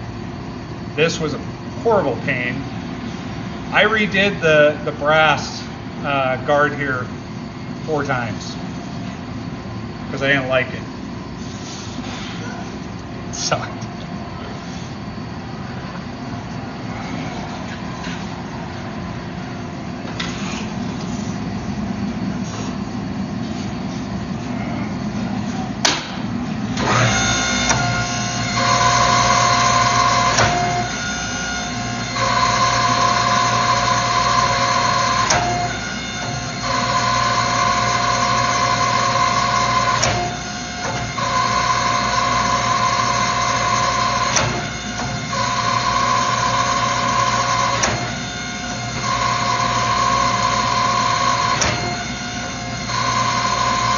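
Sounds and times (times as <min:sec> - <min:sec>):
shop hum: 0:00.0 - 0:53.9
machine motor whining: 0:26.5 - 0:53.9.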